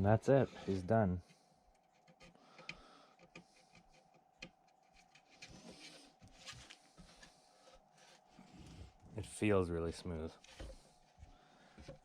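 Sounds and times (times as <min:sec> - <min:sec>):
faint steady hum: 0:00.0 - 0:12.0
small handling knocks: 0:11.7 - 0:12.0.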